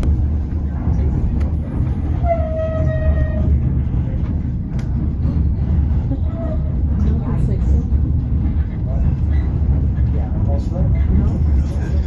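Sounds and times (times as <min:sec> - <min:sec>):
train rumbling: 0:00.0 - 0:12.0
train horn: 0:02.2 - 0:03.5.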